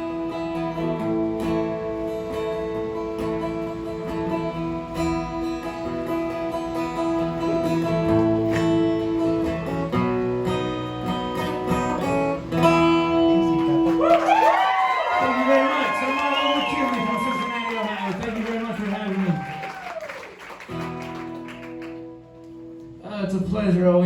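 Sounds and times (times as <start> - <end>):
acoustic guitar strumming: 0.0 - 14.0, 20.6 - 23.2.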